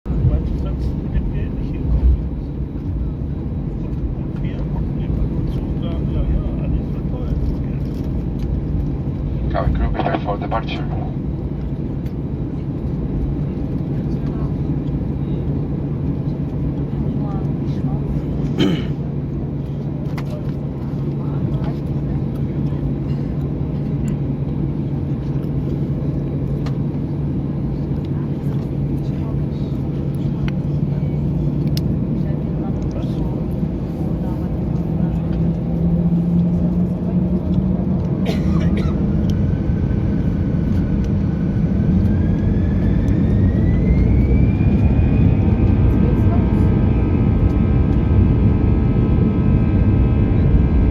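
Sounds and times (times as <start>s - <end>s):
jet engine rumble: 0.0s - 50.9s
airliner cabin hum: 0.1s - 50.9s
rising engine whine: 19.3s - 50.9s.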